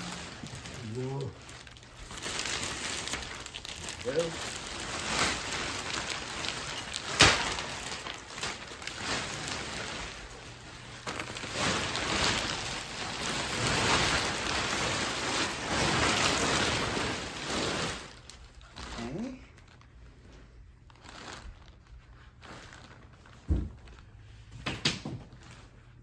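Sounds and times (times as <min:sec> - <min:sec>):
plastic wrapping rustling: 0:00.0 - 0:26.0
sharp crack: 0:05.0 - 0:10.1.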